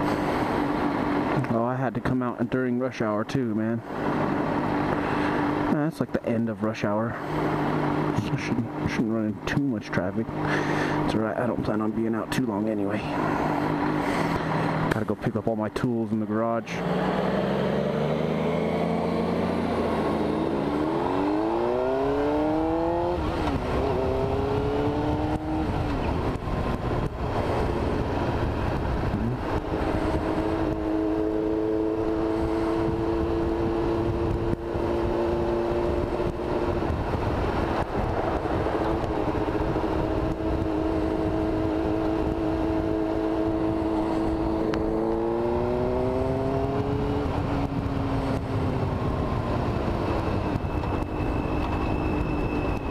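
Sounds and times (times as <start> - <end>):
motorcycle engine shifting gears: 7.2 - 15.1, 16.6 - 52.9
wind noise: 16.8 - 52.9.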